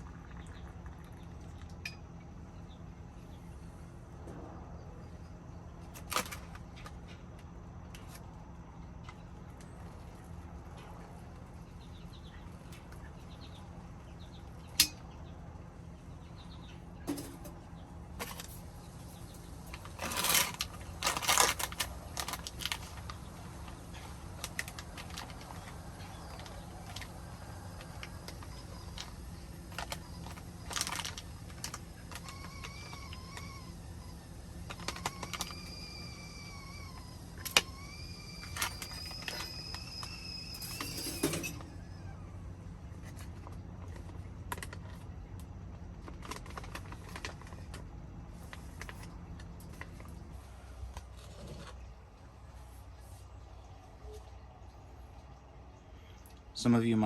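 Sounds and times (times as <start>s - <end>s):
steady low hum: 0.0s - 57.0s
wood fire crackling in a stove: 5.9s - 51.2s
faint wavering high whine: 35.1s - 42.2s.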